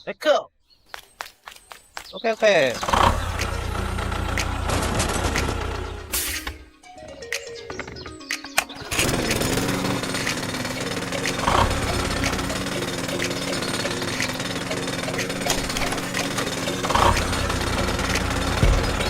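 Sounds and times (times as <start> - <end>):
small engine rattling: 2.6 - 6.2, 7.4 - 19.0.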